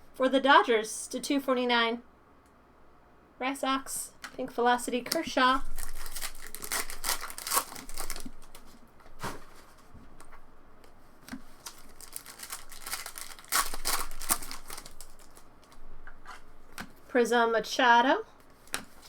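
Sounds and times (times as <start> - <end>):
foil wrappers crinkling and tearing: 5.6 - 9.8, 11.5 - 16.4.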